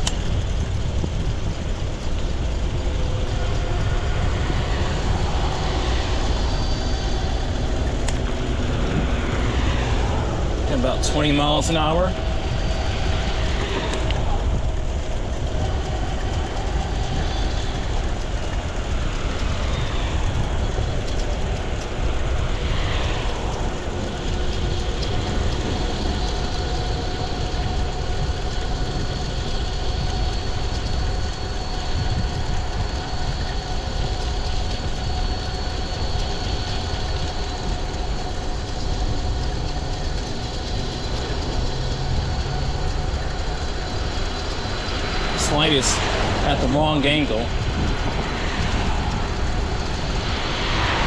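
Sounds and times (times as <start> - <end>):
electric motor whine: 0.0 - 51.0
road noise: 0.0 - 51.0
wind rushing over microphone: 0.0 - 51.0
vehicle passing by: 3.3 - 27.8, 39.9 - 51.0.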